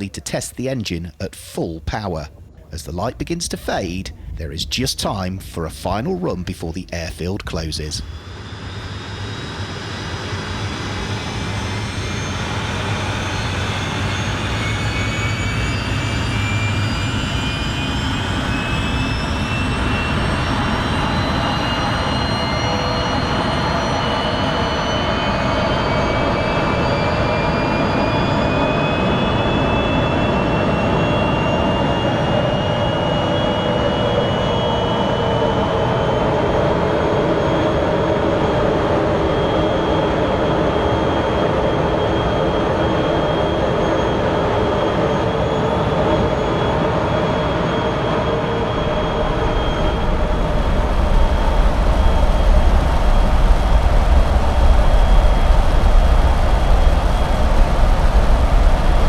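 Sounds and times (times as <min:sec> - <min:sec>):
jet engine whine spooling up: 0:00.0 - 0:59.0
deep low rumble: 0:02.3 - 0:06.3.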